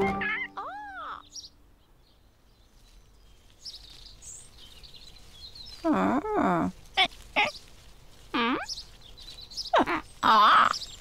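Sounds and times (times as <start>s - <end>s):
high-pitched bird chirps: 0.1s - 1.6s.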